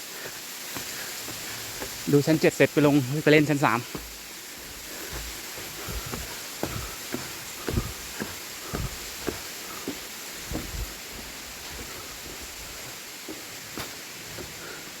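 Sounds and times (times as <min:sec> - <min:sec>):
waterfall rushing: 0:00.0 - 0:15.0
footsteps thudding: 0:00.8 - 0:02.5, 0:03.8 - 0:14.6.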